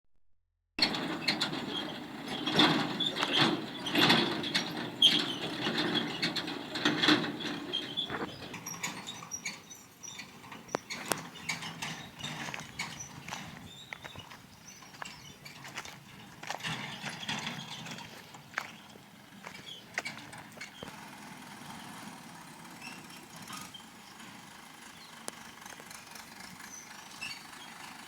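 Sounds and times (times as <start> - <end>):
scattered clicks and knocks: 0.8 - 9.6
excavator arm and bucket clanking: 0.8 - 21.1
excavator engine running: 0.8 - 28.0.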